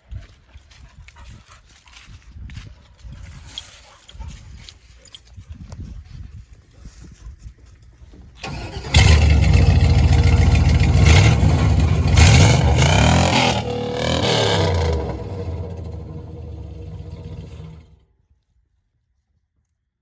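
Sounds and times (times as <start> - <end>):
truck engine cranking: 8.4 - 17.9
truck engine revving: 8.4 - 18.0.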